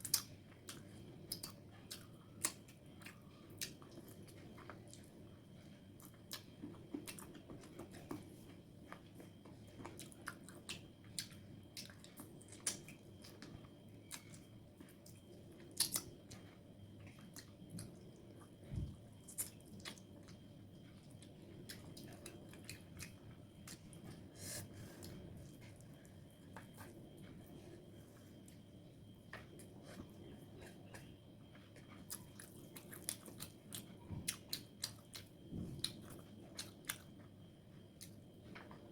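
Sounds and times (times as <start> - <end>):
close chewing and biting: 29.6 - 37.2.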